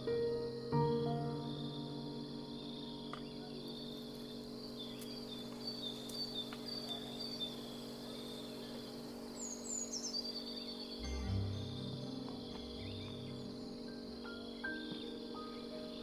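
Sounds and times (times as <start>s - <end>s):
faint low hum: 0.0s - 16.0s
high insect buzz: 0.0s - 16.0s
falling bird notes: 11.0s - 16.0s.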